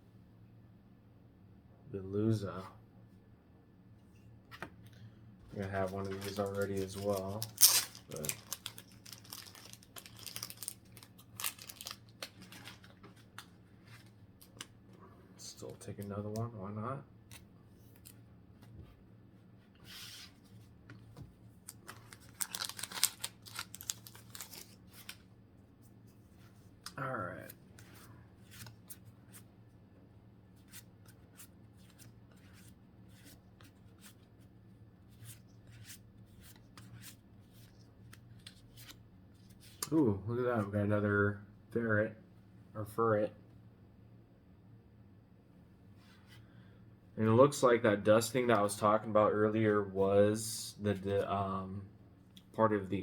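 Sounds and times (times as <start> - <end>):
trading cards and packaging rustling: 5.5 - 14.7, 21.6 - 25.3.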